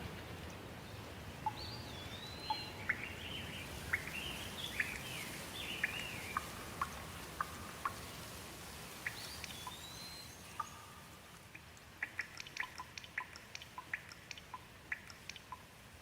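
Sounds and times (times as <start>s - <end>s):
light rain hissing: 0.0s - 16.0s
water drips ticking: 1.4s - 1.7s, 9.0s - 9.9s, 10.6s - 16.0s
bird whistled call: 9.1s - 11.0s.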